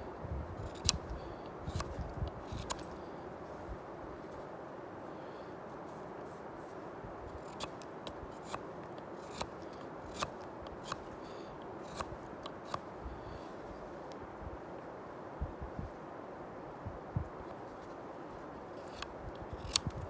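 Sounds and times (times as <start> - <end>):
knife shaving wood off stick: 0.6 - 4.5, 5.1 - 14.0, 17.5 - 20.0.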